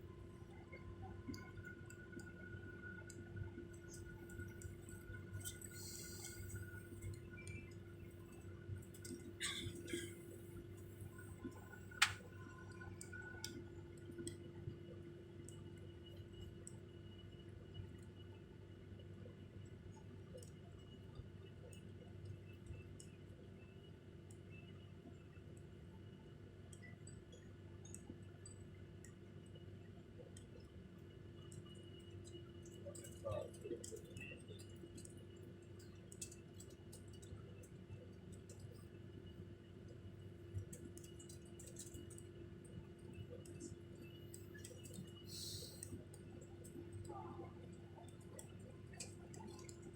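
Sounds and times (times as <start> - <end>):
airliner cabin ventilation hum: 0.0 - 15.1, 42.4 - 49.9
low hum of aircraft air system: 0.0 - 49.9
small clicks: 40.6 - 42.3.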